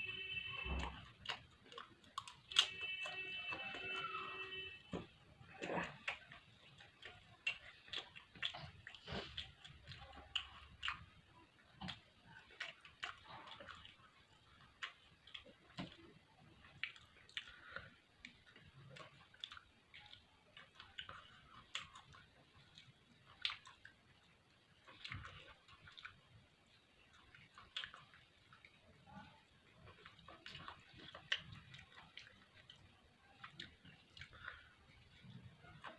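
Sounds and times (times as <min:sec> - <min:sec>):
person chewing food: 0:00.0 - 0:35.9
crunches and wet mouth smacks: 0:16.7 - 0:24.0.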